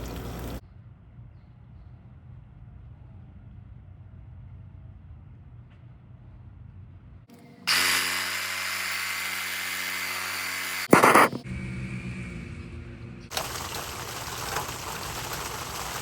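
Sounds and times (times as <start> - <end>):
power tool motor whirring: 7.7 - 11.5.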